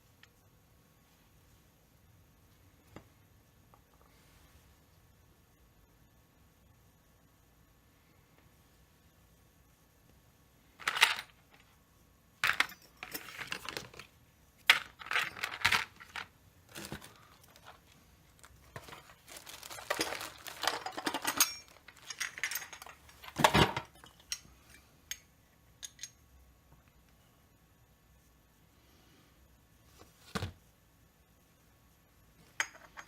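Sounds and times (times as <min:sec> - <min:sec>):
small parts clicking and rattling: 0:10.8 - 0:11.7, 0:12.4 - 0:26.2, 0:32.4 - 0:33.0.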